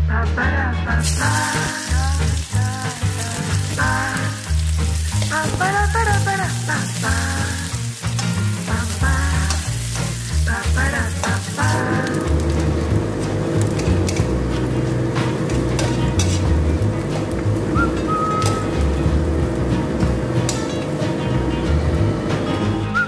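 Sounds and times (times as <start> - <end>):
background music with bass line: 0.0 - 23.0
food sizzling in hot oil: 1.0 - 22.4
spatula stirring in wok: 1.2 - 17.2.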